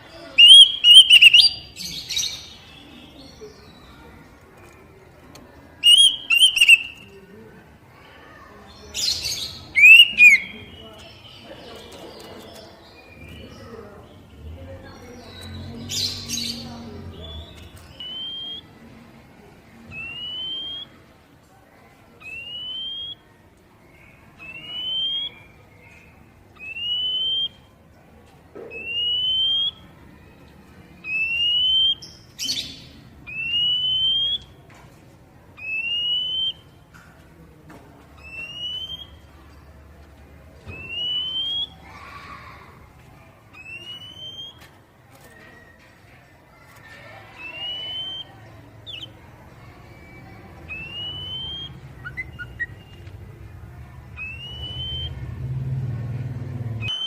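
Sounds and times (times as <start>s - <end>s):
rising whistled bird call: 0.4s - 1.6s, 5.8s - 7.0s, 9.8s - 10.5s, 24.4s - 25.5s, 33.3s - 34.5s, 35.6s - 36.6s, 38.2s - 39.2s, 40.7s - 41.8s, 47.4s - 49.1s, 50.0s - 53.1s, 54.2s - 55.2s.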